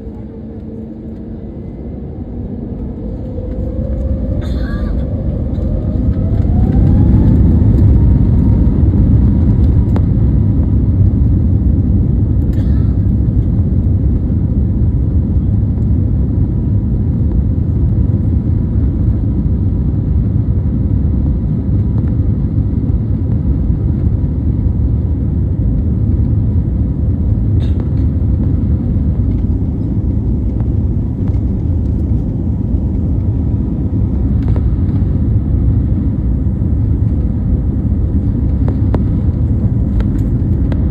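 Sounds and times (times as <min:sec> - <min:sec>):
faint steady whine: 0:00.0 - 0:19.9
jet engines rumbling: 0:00.0 - 0:40.9.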